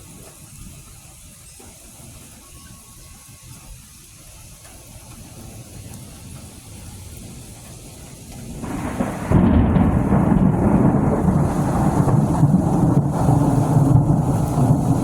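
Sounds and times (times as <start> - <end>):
rain falling: 0.0 - 15.0
thunder rumbling: 7.1 - 15.0.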